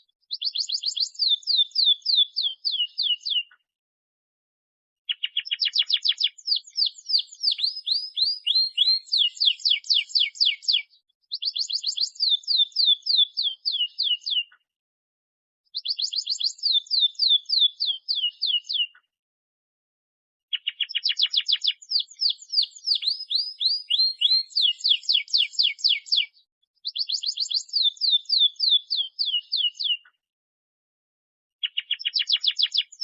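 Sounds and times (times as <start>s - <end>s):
canary singing: 0.3s - 3.6s, 5.1s - 14.6s, 15.7s - 19.0s, 20.5s - 30.1s, 31.6s - 33.0s.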